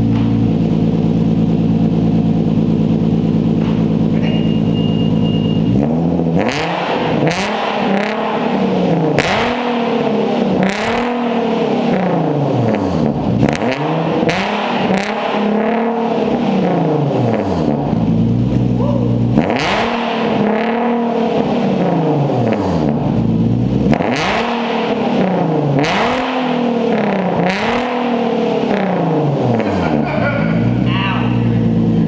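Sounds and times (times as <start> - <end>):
car engine idling and revving: 0.0 - 32.0
exhaust cracks: 0.0 - 32.0.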